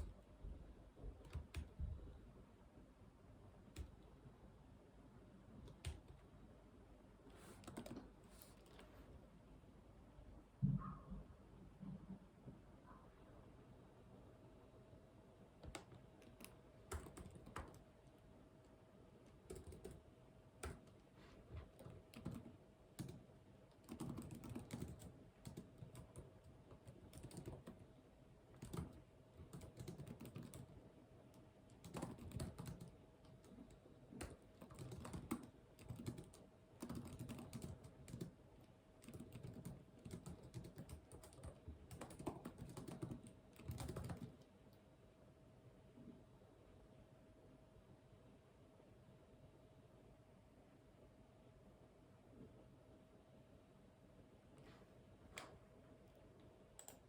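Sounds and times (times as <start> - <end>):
faint steady hum: 0.0 - 57.0
keyboard typing: 1.1 - 1.8, 5.6 - 6.2, 7.6 - 8.8, 15.6 - 17.8, 19.3 - 20.0, 20.6 - 21.0, 21.6 - 27.8, 28.5 - 30.8, 31.7 - 38.4, 39.0 - 44.5, 56.8 - 57.0.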